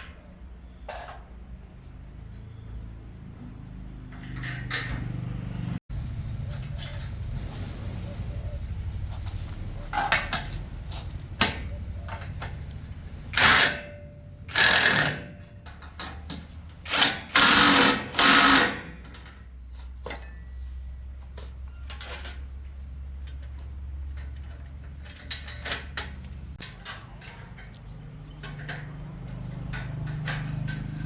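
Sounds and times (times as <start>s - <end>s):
power tool bursts: 14.5s - 15.3s, 16.8s - 19.0s.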